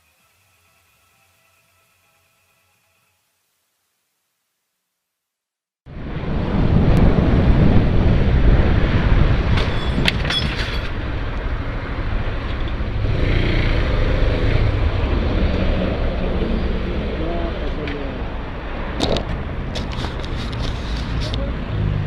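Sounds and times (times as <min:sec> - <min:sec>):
road noise: 0:05.9 - 0:22.0.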